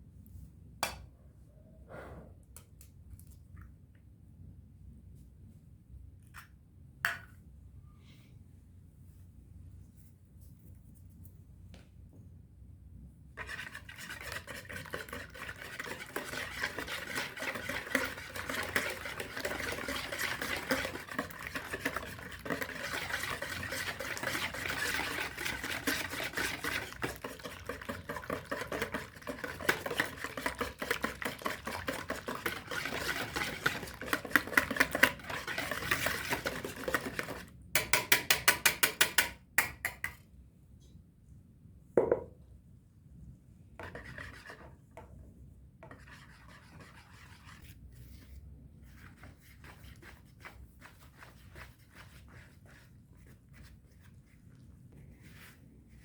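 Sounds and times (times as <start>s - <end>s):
utensil stirring in a bowl: 13.4s - 40.2s, 43.8s - 56.0s.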